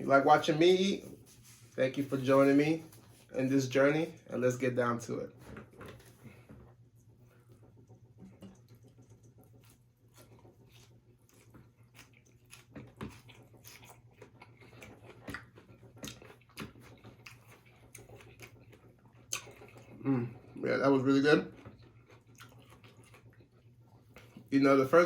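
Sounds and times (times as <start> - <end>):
person chewing food: 5.9 - 20.6, 21.4 - 24.5
mouth clicks and crunches: 10.2 - 20.6.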